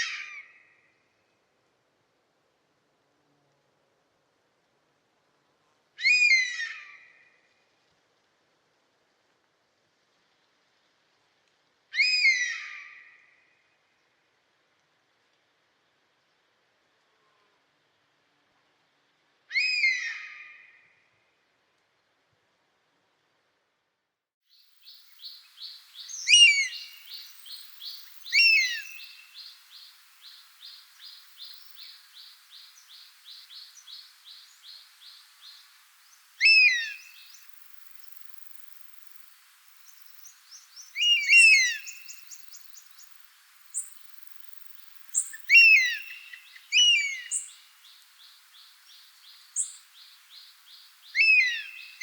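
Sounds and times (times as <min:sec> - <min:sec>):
falling bird call notes: 0:24.8 - 0:52.0.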